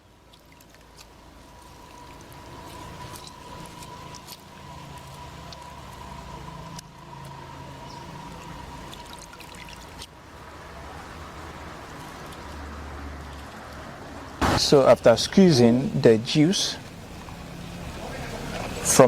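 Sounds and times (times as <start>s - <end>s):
wet squelches of squeezed limes: 0.0s - 14.6s.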